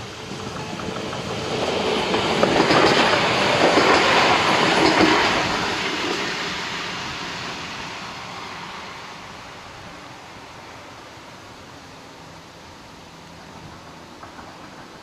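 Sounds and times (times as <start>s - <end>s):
train wheels clattering over rails: 0.0s - 8.9s, 13.3s - 15.0s.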